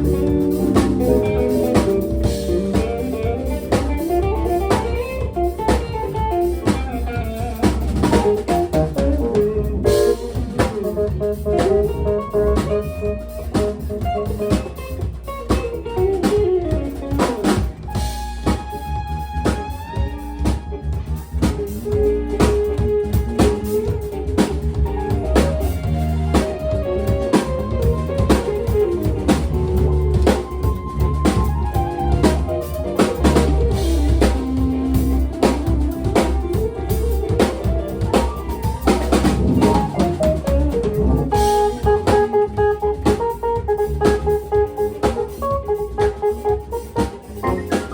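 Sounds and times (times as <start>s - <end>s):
band playing soul-blues: 0.0s - 47.9s
lead guitar: 0.0s - 47.9s.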